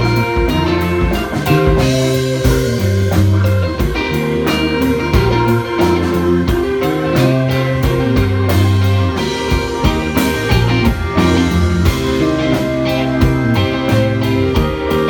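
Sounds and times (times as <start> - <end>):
bass line: 0.0 - 15.0
drums keeping a steady beat: 0.0 - 15.0
electric guitar: 0.0 - 15.0.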